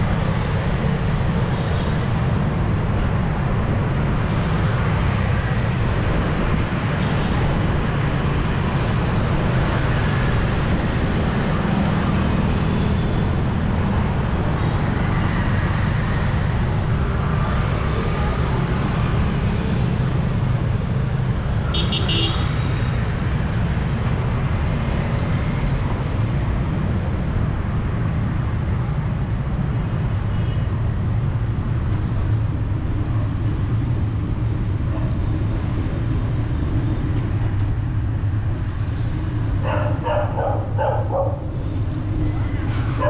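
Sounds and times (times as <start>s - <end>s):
traffic rumble: 0.0s - 43.0s
vehicle horn toot: 21.7s - 22.6s
dog barking: 39.6s - 41.5s.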